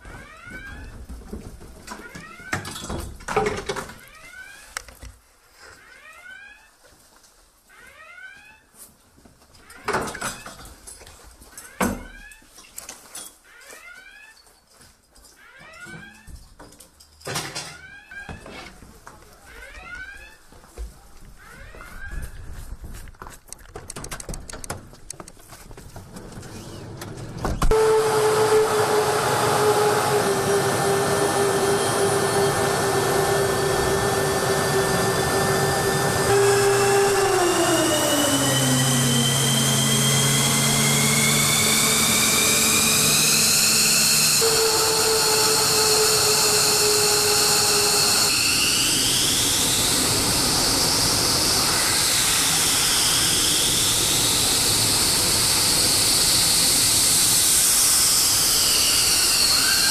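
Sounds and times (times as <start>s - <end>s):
jet engine rushing and whining: 26.3s - 59.9s.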